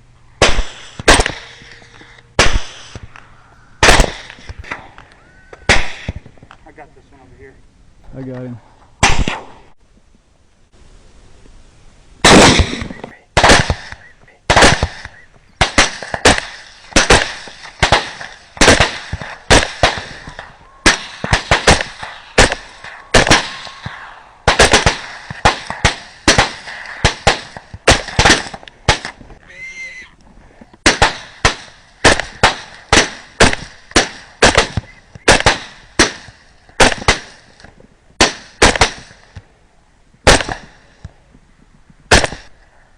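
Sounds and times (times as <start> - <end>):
gunshots: 0.4 - 3.2, 3.8 - 5.0, 5.7 - 6.3, 9.0 - 9.7, 12.2 - 29.2, 30.8 - 39.4, 40.2 - 40.8, 42.1 - 42.6.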